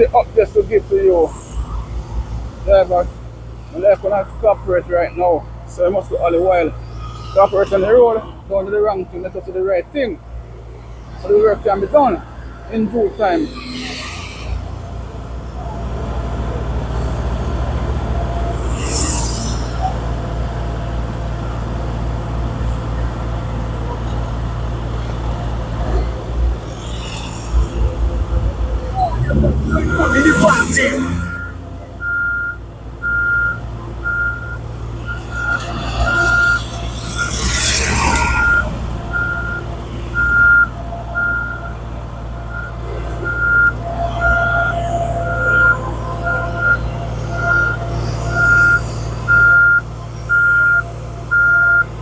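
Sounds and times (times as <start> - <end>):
motor vehicle rumble: 0.0 - 52.0
vehicle reversing alarm beeping: 29.0 - 52.0.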